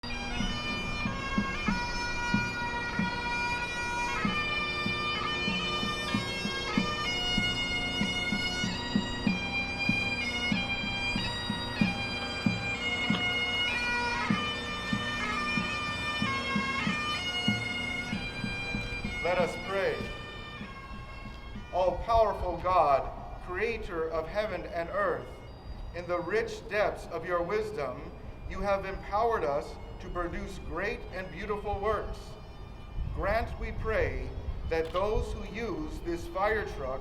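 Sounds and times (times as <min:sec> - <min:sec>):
bagpipes playing: 0:00.0 - 0:37.0.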